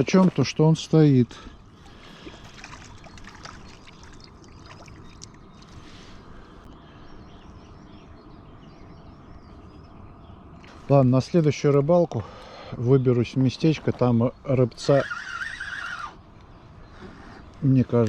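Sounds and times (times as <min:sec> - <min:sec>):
flowing river water: 0:01.5 - 0:06.2.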